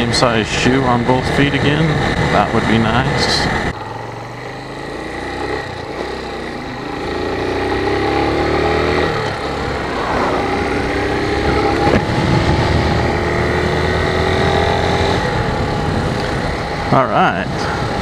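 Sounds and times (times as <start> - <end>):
motorcycle engine accelerating: 3.6 - 17.0
riding wind rushing: 9.0 - 18.0.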